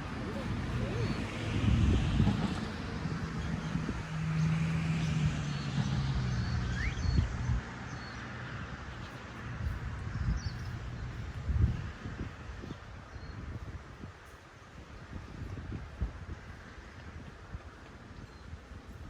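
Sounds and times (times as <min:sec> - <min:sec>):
low engine hum: 0:00.0 - 0:13.8
bird chirp: 0:04.4 - 0:08.3, 0:10.1 - 0:11.3.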